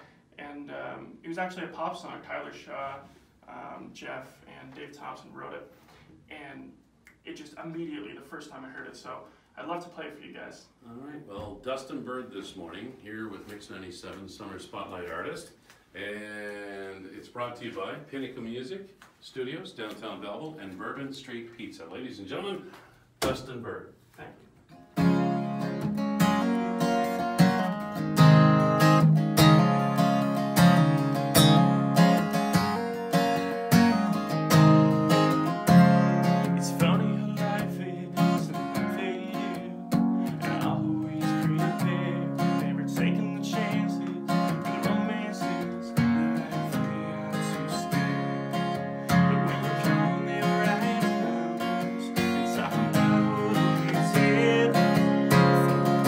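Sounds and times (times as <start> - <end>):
acoustic guitar strumming chords: 24.7 - 56.0.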